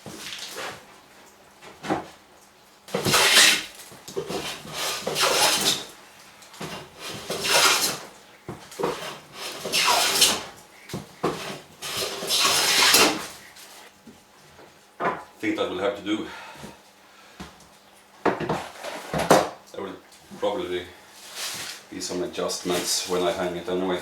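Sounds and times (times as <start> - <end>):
hand plane cutting wood: 2.9 - 5.9, 6.6 - 8.1, 8.8 - 10.5, 11.2 - 13.4.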